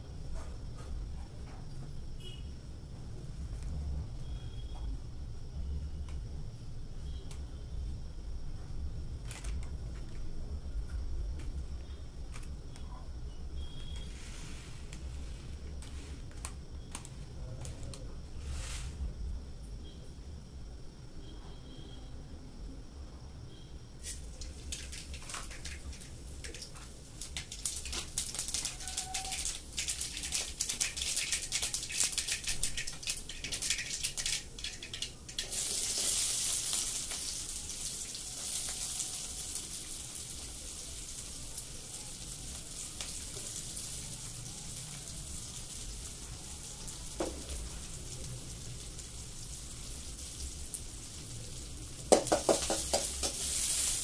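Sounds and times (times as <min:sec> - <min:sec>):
onions sizzling: 0:13.5 - 0:17.2, 0:18.3 - 0:19.0, 0:24.0 - 0:54.0
oil crackling and spitting: 0:24.0 - 0:46.3, 0:47.2 - 0:54.0.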